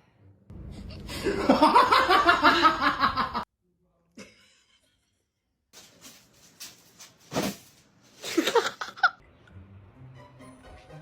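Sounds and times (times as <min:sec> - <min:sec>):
rustling: 0:05.8 - 0:08.5.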